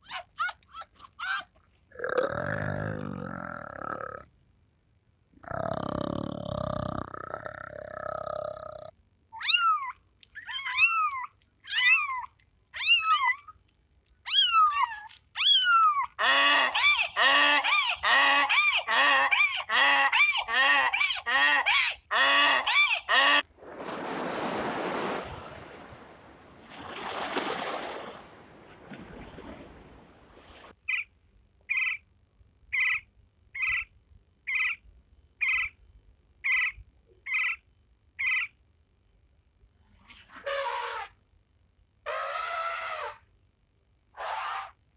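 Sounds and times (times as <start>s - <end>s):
animal calls: 0.0s - 1.6s, 14.3s - 23.5s, 24.9s - 31.1s, 31.7s - 32.0s, 32.7s - 33.9s, 34.5s - 34.8s, 35.4s - 35.8s, 36.4s - 37.6s, 38.2s - 38.6s, 40.3s - 41.2s, 42.1s - 43.2s, 44.2s - 44.8s.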